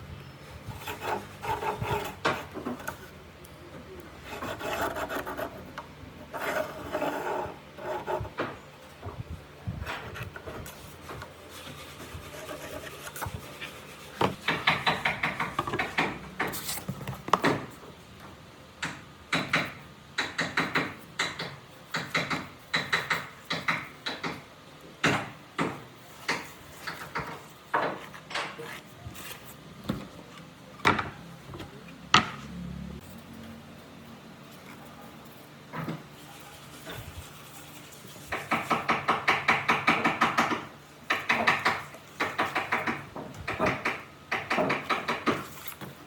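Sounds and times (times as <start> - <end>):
hand tool rubbing against wood: 9.9 - 14.6
sharp knocks: 14.2 - 16.6, 38.3 - 45.4.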